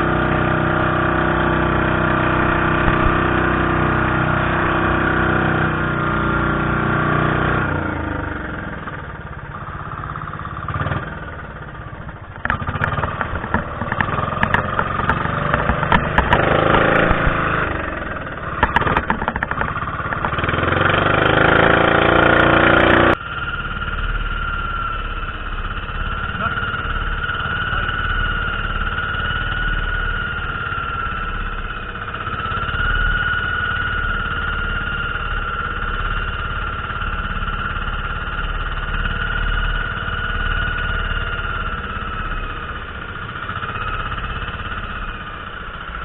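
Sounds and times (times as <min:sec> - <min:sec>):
boat engine running: 0:00.0 - 0:46.0
clicks and knocks: 0:18.6 - 0:20.4.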